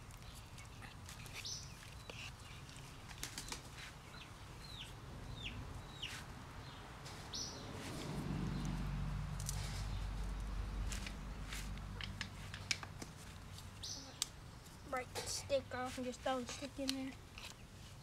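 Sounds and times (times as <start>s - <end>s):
bird chirping: 0.2s - 2.8s, 3.4s - 7.7s, 13.8s - 15.0s.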